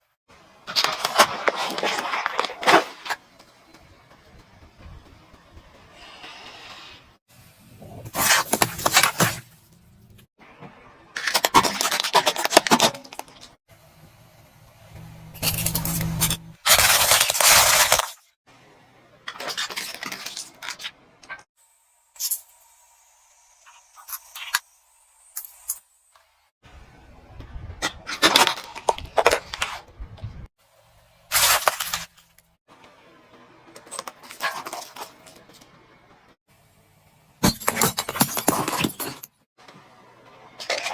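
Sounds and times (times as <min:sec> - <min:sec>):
tyre crunching brittle objects: 0:07.8 - 0:10.0, 0:15.4 - 0:18.3, 0:31.3 - 0:32.5
objects crushed under car tyre: 0:37.4 - 0:39.3.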